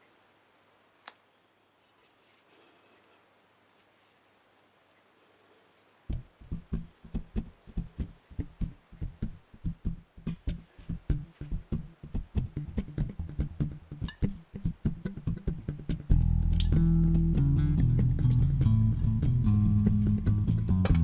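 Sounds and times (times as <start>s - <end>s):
music with low thumping beat: 6.1s - 21.0s.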